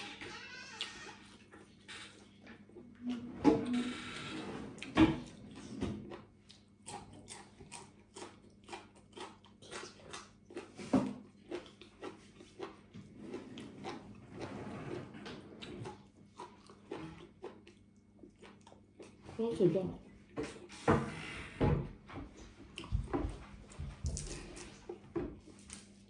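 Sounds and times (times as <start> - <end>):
mouth chewing crisp food: 5.4 - 19.3.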